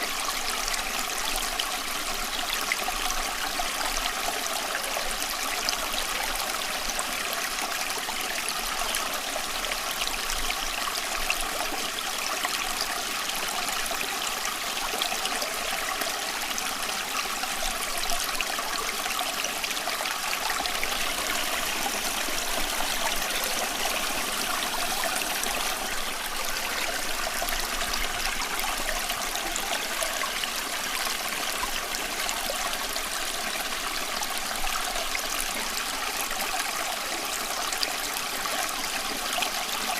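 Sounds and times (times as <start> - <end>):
running water babbling: 0.0 - 39.9.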